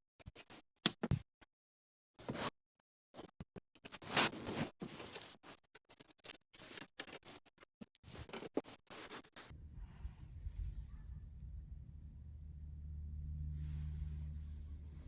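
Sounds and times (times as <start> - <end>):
low steady hum: 9.5 - 15.0.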